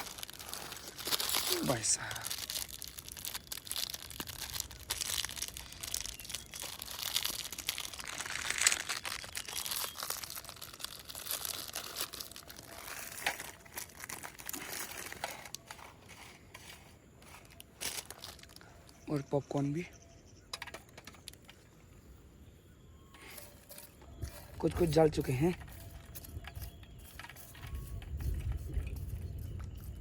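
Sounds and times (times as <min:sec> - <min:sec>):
plastic packaging crinkling and tearing: 0:00.0 - 0:19.0.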